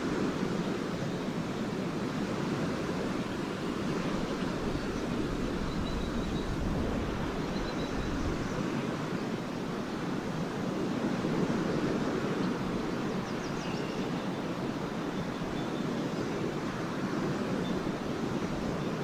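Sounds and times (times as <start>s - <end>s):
lake waves washing on shore: 0.0s - 19.0s
wind on microphone: 0.0s - 19.0s
swallows twittering: 3.3s - 6.7s, 7.3s - 8.6s.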